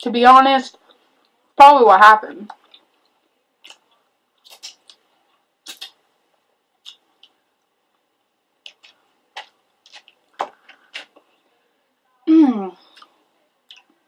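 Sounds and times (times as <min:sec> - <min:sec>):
pizza chewing crunches: 0:03.6 - 0:06.0, 0:08.6 - 0:11.3.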